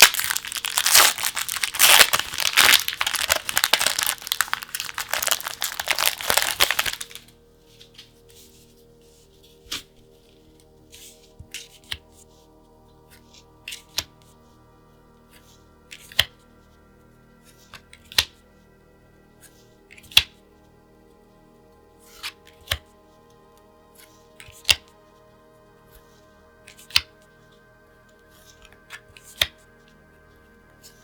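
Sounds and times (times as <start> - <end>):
plastic sleeves rustling: 0.0 - 8.1.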